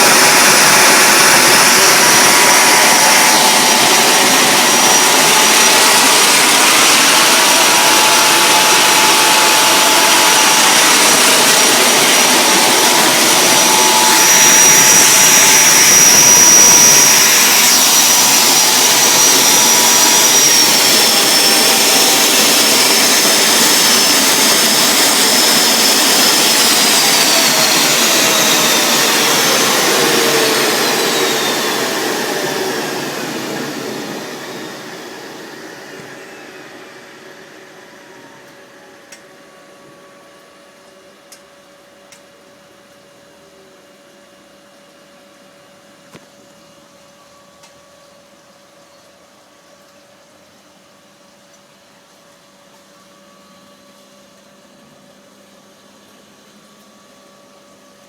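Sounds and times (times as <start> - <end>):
turbine engine whining: 0.0 - 40.7.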